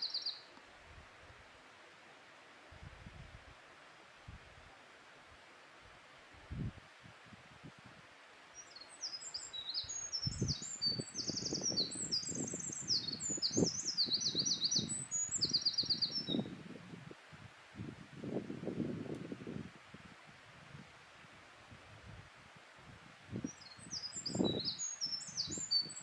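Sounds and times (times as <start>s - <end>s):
wren singing: 0.0s - 0.4s, 8.6s - 16.5s, 23.5s - 26.0s.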